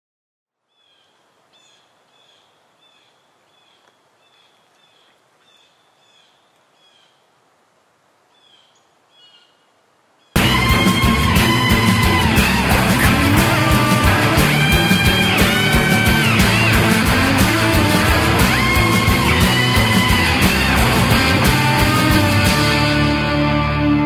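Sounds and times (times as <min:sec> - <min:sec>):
faint outdoor hiss: 0:00.5 - 0:10.4
loud guitar music: 0:10.4 - 0:24.0.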